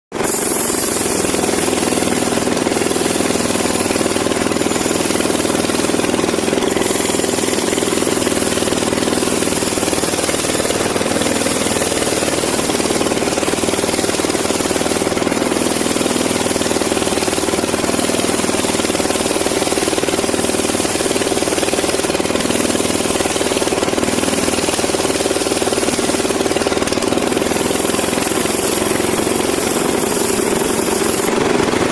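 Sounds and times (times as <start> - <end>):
band saw cutting timber: 0.1 - 31.9.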